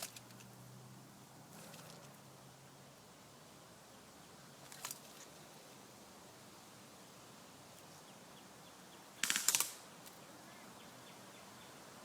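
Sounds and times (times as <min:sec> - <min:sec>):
airsoft rifle full-auto burst: 0:09.2 - 0:09.8.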